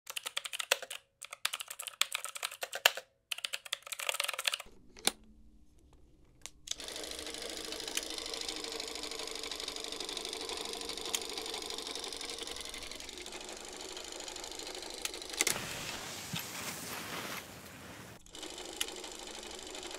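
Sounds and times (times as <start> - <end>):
low hum: 4.7 - 8.8
film projector clattering: 6.7 - 16.0, 18.2 - 19.9.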